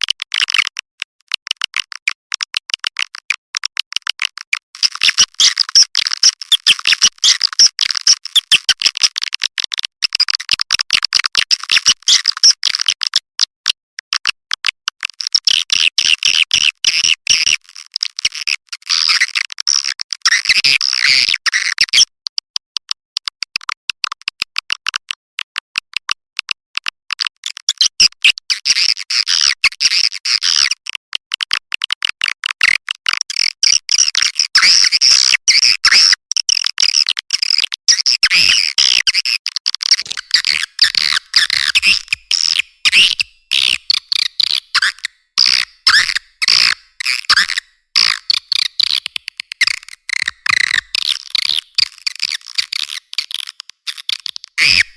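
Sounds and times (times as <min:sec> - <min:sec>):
high-pitched bird chirping and twittering: 0:40.0 - 0:54.9.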